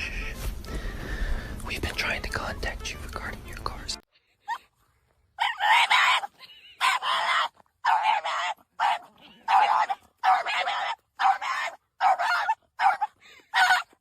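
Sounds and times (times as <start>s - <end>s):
dog giving harsh raspy calls: 5.4s - 14.0s.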